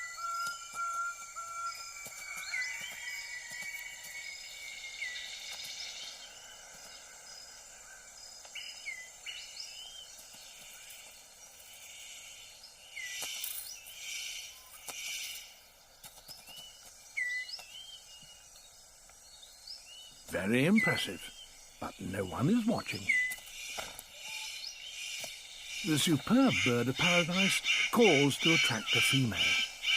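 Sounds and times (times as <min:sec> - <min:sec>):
high insect tones: 0:00.0 - 0:29.9
upward-curving bird chirps: 0:19.4 - 0:29.9.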